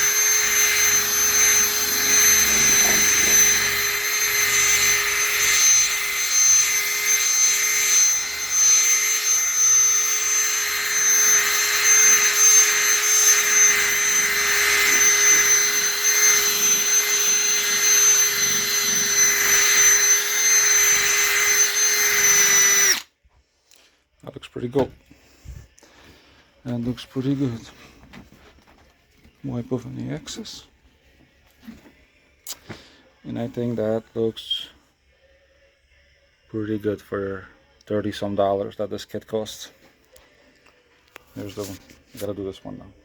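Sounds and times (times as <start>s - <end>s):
buffing pad hissing: 0.0s - 23.0s
electric drill whining: 0.0s - 23.1s.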